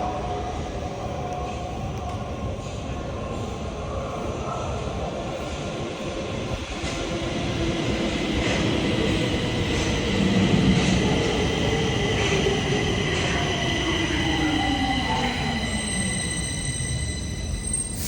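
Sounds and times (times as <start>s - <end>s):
high whistling tones: 15.8s - 18.0s.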